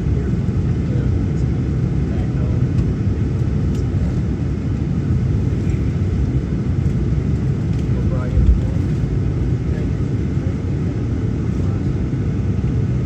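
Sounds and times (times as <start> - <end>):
aircraft cabin low rumble: 0.0 - 13.0.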